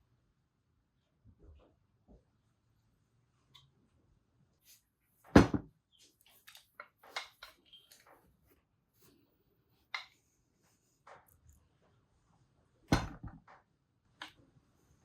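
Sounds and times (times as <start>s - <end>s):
loud knock on workbench: 5.4s - 5.7s, 12.9s - 13.4s.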